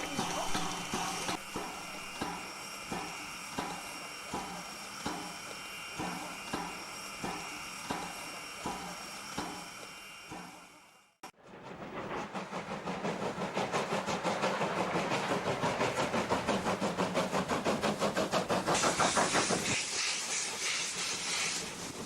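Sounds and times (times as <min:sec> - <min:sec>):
steam locomotive chuffing: 0:00.0 - 0:22.0
loud steam hiss: 0:13.8 - 0:22.0.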